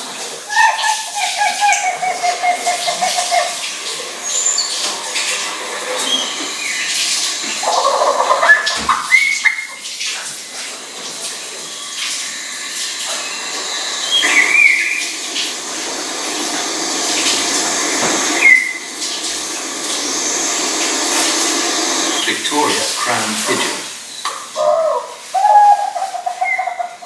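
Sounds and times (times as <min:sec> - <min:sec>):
bird calls: 0:00.4 - 0:09.9, 0:11.5 - 0:27.0
steady rushing noise: 0:12.5 - 0:23.8.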